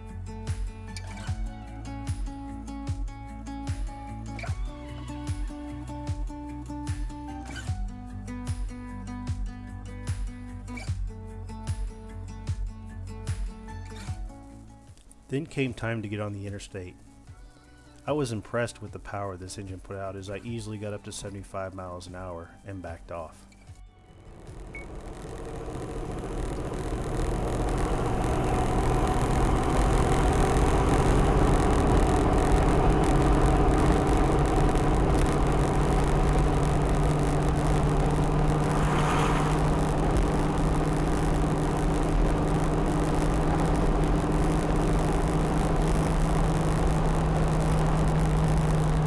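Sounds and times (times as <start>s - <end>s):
diesel engine drone: 24.0s - 49.0s
road and wind noise: 24.1s - 49.0s
brief whoosh: 38.2s - 40.5s.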